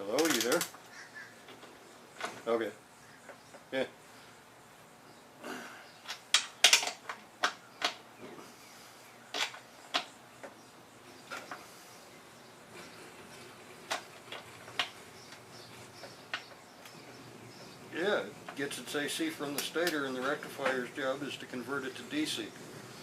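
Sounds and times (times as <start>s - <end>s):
sharp clicks and knocks: 0.1s - 0.8s, 6.0s - 8.0s, 13.8s - 17.8s.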